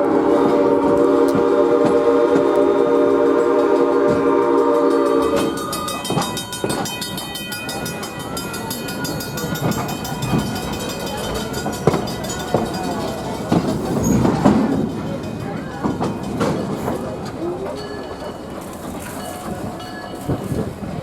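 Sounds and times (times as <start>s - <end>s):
steam whistle chord: 0.0s - 6.2s
rumble of rolling train: 0.0s - 21.0s
wheels clicking over rail joints: 0.4s - 21.0s.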